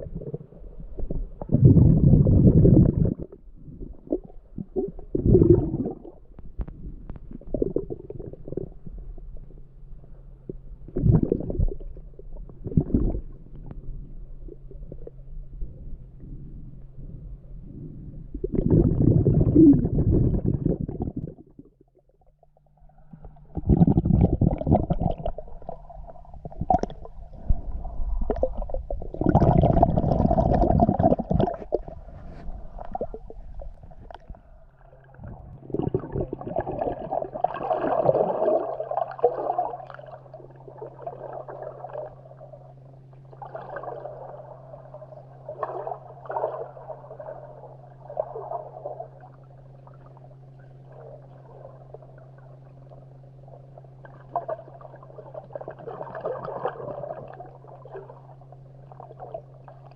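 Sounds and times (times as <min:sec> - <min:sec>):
muffled underwater water surges: 0:00.0 - 0:59.9
steady low hum: 0:00.0 - 0:59.9.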